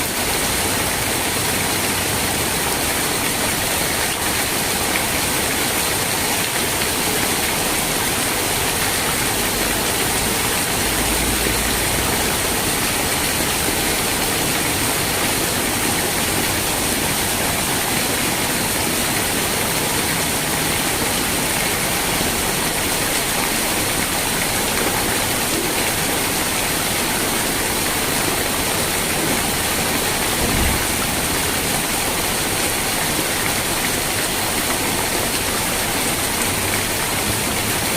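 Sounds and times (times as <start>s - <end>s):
rain hiss: 0.0s - 37.9s
low thud: 30.4s - 31.2s.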